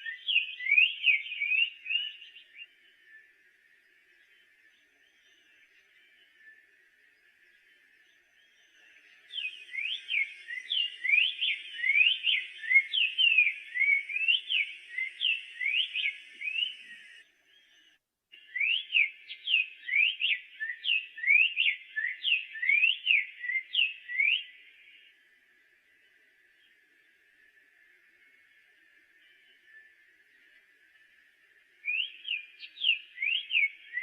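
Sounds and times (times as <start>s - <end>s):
bird singing whistled notes: 0.0s - 34.0s.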